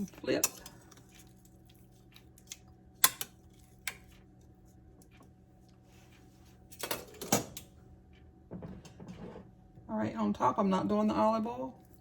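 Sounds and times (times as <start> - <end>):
tongs clicking on baking dish: 0.0 - 1.0, 2.1 - 4.2.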